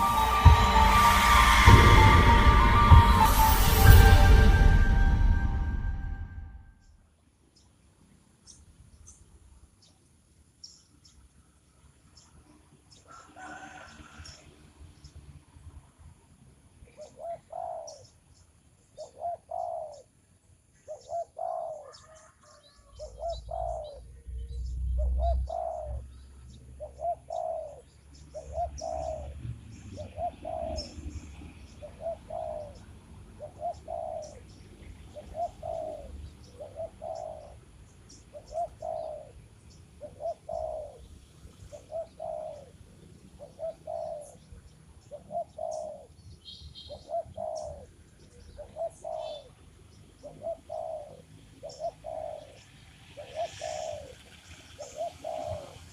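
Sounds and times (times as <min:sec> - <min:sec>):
low rumble: 0:00.0 - 0:06.9
small birds chirping: 0:16.8 - 0:55.9
dove cooing: 0:17.0 - 0:18.0, 0:19.0 - 0:20.1, 0:20.9 - 0:24.0, 0:25.0 - 0:26.0, 0:26.8 - 0:29.4, 0:30.0 - 0:31.0, 0:31.8 - 0:32.8, 0:33.4 - 0:34.5, 0:35.1 - 0:37.6, 0:38.3 - 0:39.4, 0:40.0 - 0:41.0, 0:41.7 - 0:42.8, 0:43.4 - 0:44.4, 0:45.1 - 0:46.1, 0:46.9 - 0:47.9, 0:48.6 - 0:49.5, 0:50.2 - 0:52.6, 0:53.2 - 0:55.9.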